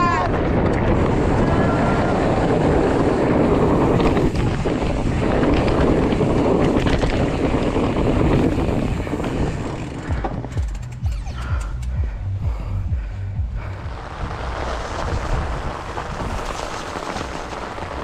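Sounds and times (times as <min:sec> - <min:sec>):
wind rushing over microphone: 0:00.0 - 0:18.0
bike knocks and rattles: 0:02.5 - 0:12.7.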